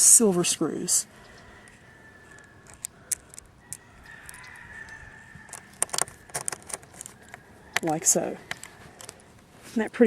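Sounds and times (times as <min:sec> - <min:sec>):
screwdriver clicks: 0:02.3 - 0:07.9.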